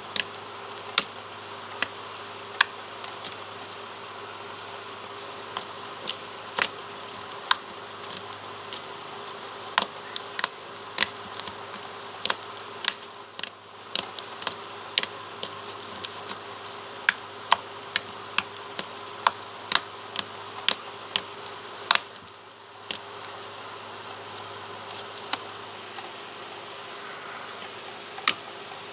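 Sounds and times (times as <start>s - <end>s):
steady background hum: 0.0s - 28.9s.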